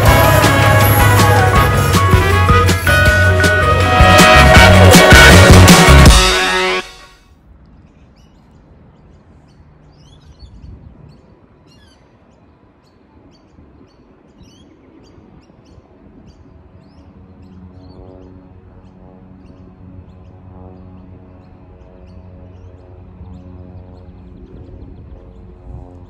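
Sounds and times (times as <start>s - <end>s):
low droning hum: 15.0s - 26.0s.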